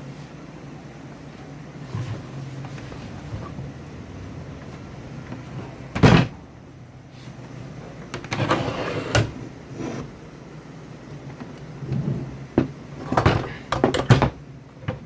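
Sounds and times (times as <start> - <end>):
scraping and rustling: 1.7 - 6.4
heavy thump: 2.1 - 6.5.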